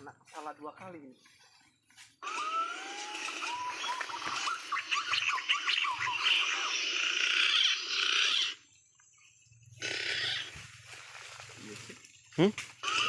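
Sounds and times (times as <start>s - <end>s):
dense buzzing: 2.2s - 8.6s
rapid chirps: 2.2s - 10.6s.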